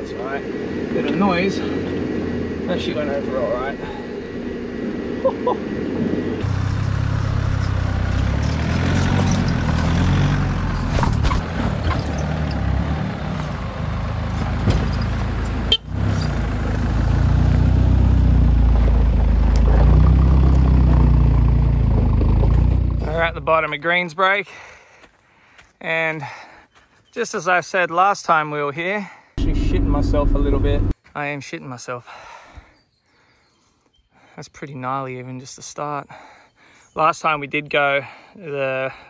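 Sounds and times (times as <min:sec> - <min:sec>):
vehicle engine running low: 0:00.0 - 0:23.7, 0:29.4 - 0:30.9.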